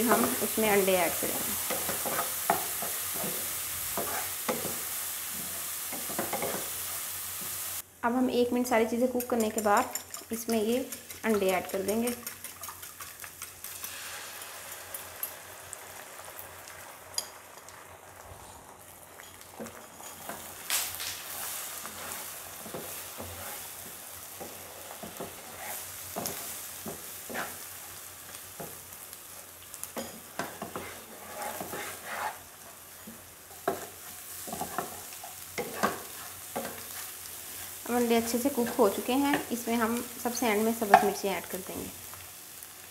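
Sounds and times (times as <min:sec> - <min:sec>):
eggs sizzling in frying pan: 0:00.0 - 0:42.9
spatula scraping pan: 0:01.1 - 0:04.8, 0:09.1 - 0:14.4, 0:21.3 - 0:27.8, 0:29.9 - 0:37.6.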